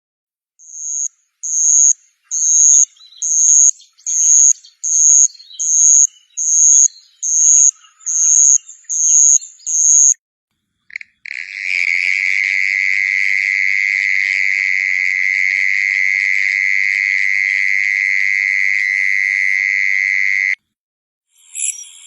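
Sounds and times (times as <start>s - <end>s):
faint chirps: 0.6s - 10.2s, 21.3s - 22.0s
insect buzzing pulses: 0.6s - 10.2s, 11.8s - 20.6s.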